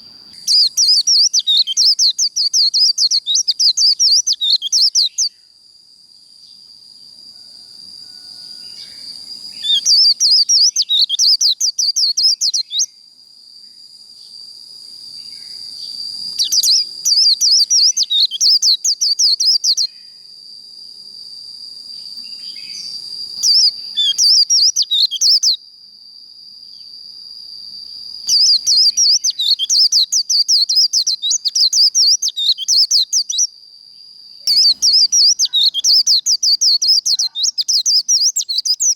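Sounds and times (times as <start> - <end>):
bird singing a high trill: 0.0 - 5.6, 7.4 - 13.0, 15.1 - 20.4, 22.0 - 25.6, 27.8 - 38.9.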